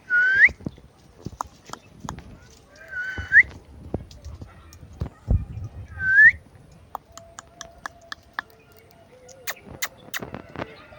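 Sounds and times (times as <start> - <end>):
sharp clicks: 6.7 - 10.3.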